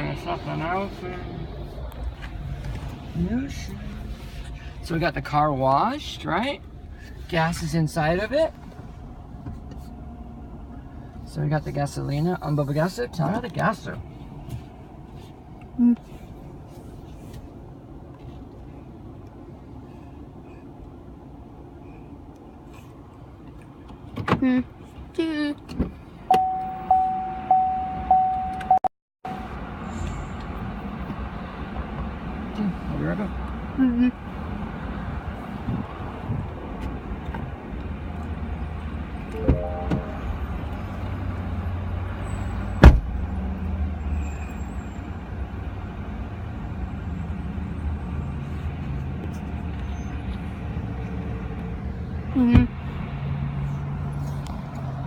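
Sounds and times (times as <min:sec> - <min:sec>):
low vehicle rumble: 0:29.3 - 0:44.0
faint short high tones: 0:39.4 - 0:40.7.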